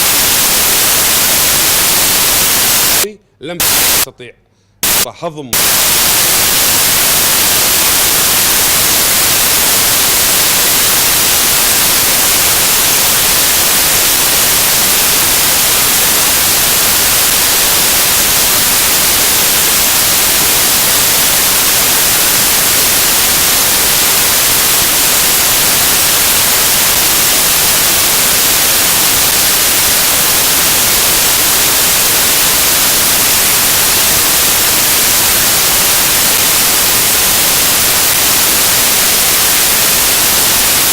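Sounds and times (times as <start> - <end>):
loud static hiss: 0.0 - 40.9
speech: 3.0 - 5.6.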